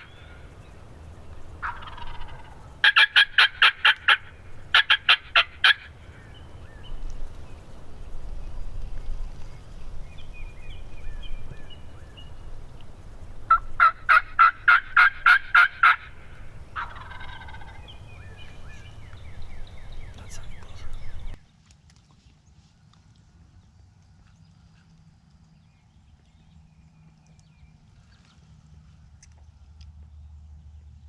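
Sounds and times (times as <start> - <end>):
turkey yelps: 0.0 - 0.4, 1.6 - 6.3, 13.5 - 21.3
turkeys gobbling faintly: 0.0 - 21.4.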